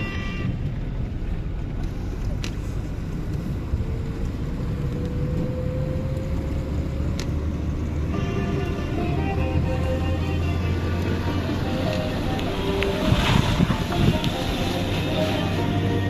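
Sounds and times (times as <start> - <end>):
vehicle engine rumble: 0.0 - 16.0
music: 8.1 - 16.0.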